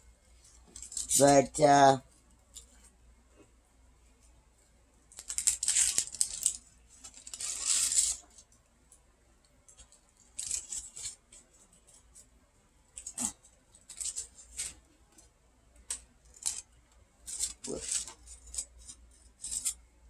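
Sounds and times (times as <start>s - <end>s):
candy wrapper crinkling and tearing: 5.1s - 8.2s, 17.3s - 19.8s.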